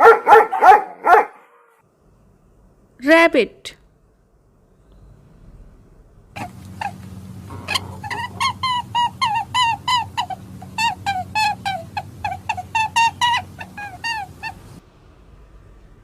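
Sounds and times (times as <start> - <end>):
steady low hum: 3.8 - 16.0
animal short clipped calls: 6.4 - 9.4.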